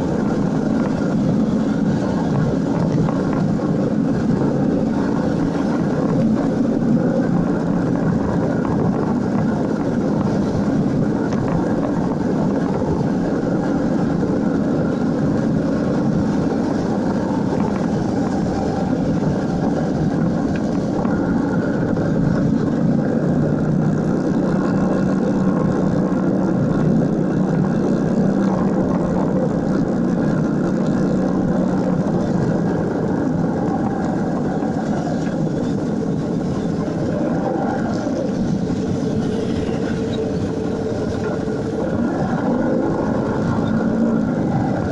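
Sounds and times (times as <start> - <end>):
motorcycle engine running: 0.0 - 44.9
road and wind noise: 0.0 - 44.9.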